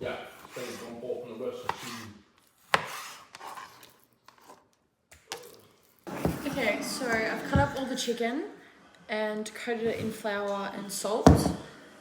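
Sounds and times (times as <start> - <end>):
knife slicing raw chicken: 1.6 - 3.9
knife knocking on chopping board: 11.3 - 11.6.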